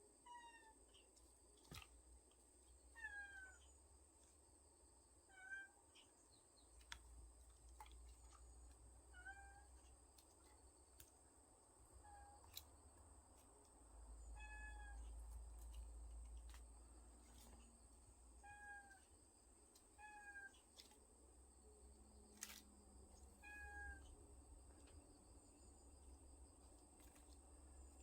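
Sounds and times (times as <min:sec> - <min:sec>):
kittens meowing faintly: 0:03.0 - 0:03.7, 0:14.4 - 0:15.2, 0:23.4 - 0:24.1.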